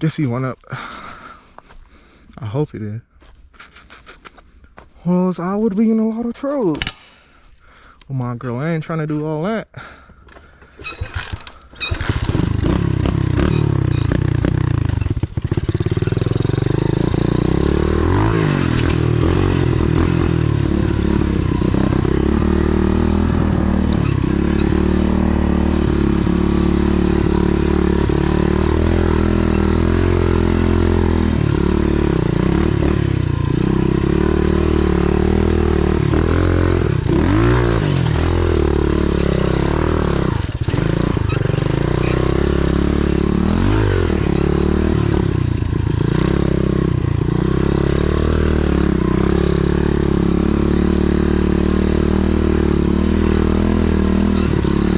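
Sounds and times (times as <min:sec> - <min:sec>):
motorbike engine revving: 0:10.8 - 0:54.9.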